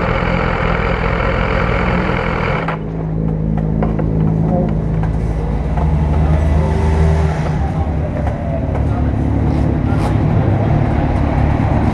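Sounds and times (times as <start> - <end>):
motorcycle engine idling: 0.0 - 3.1.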